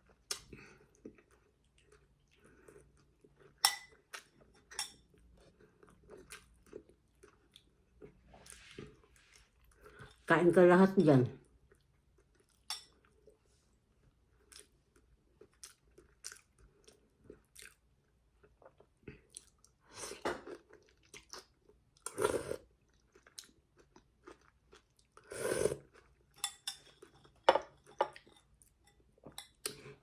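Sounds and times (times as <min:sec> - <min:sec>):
person chewing food: 0:00.0 - 0:10.2, 0:11.5 - 0:30.0.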